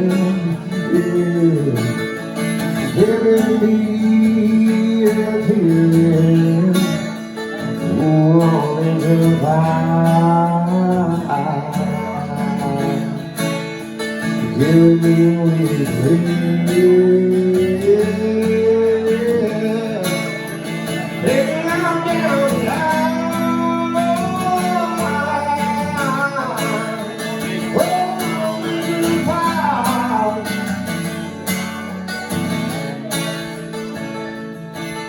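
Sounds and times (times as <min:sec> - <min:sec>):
acoustic guitar chords: 0:00.0 - 0:35.0
sliding guitar melody: 0:00.0 - 0:35.0.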